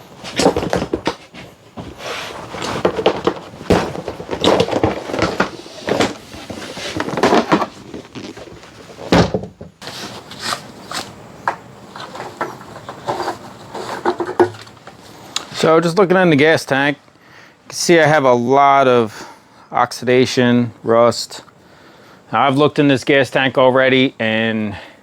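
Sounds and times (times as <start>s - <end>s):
vehicle parts clunking and rattling: 0.0s - 15.2s.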